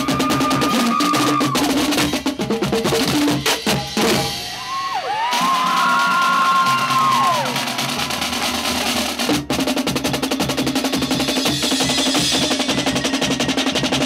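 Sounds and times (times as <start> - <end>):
crowd cheering with whoops: 0.0 - 1.7, 4.5 - 8.9
snare and bass drums: 0.0 - 4.6, 5.2 - 14.0.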